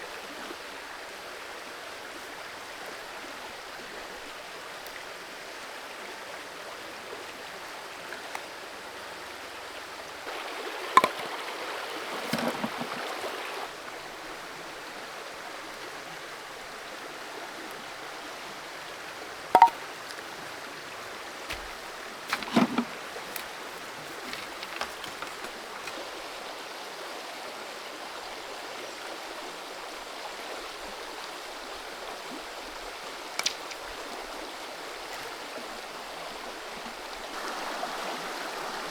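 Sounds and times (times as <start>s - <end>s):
creek water flowing: 0.0s - 38.9s.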